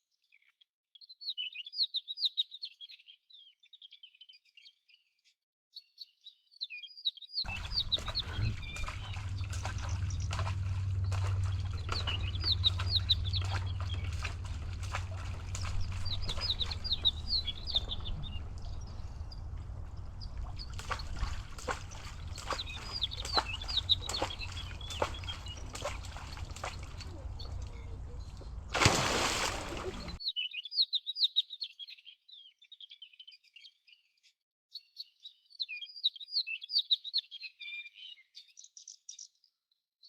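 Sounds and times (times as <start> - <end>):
small birds chirping: 0.2 - 39.6
steady low hum: 7.5 - 30.2.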